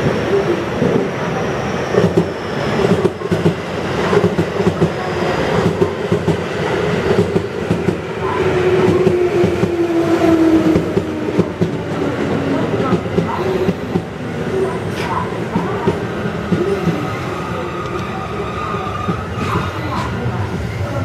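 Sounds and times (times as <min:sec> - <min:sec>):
train rumbling and rattling: 0:00.0 - 0:21.0.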